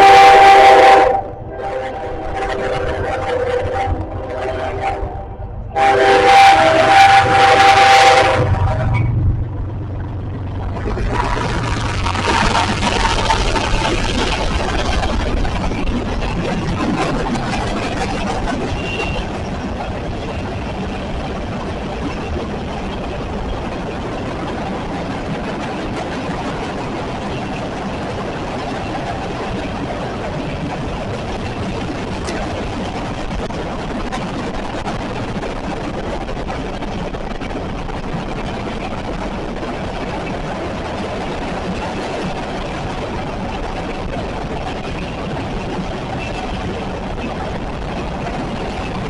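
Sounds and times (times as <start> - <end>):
train rumbling and rattling: 0.0 - 49.0
wind buffeting microphone: 0.0 - 49.0.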